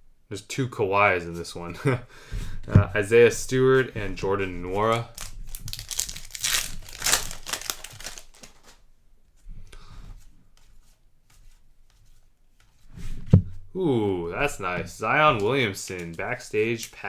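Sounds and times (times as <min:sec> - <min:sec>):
wrapper crinkling and tearing: 0:04.8 - 0:08.8
cards clicking: 0:04.9 - 0:08.8.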